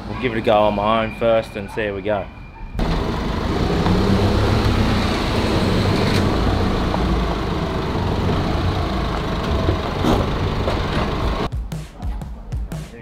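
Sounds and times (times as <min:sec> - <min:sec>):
diesel engine idling: 0:02.8 - 0:11.5.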